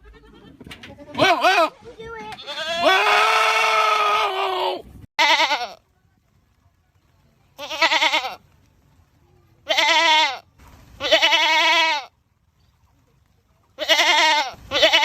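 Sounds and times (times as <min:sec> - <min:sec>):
goat bleating: 0:00.0 - 0:05.8, 0:07.6 - 0:08.4, 0:09.6 - 0:12.1, 0:13.8 - 0:15.0.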